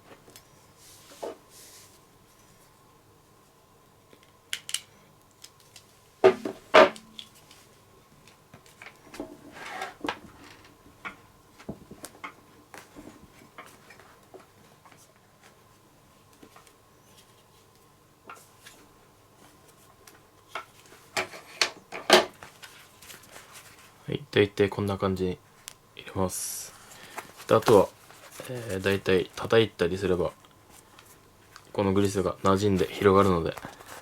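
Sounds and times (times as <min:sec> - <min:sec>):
louder knocks: 0:06.2 - 0:07.2
rubbing and rustling of leather glove: 0:22.4 - 0:24.0, 0:26.7 - 0:29.4.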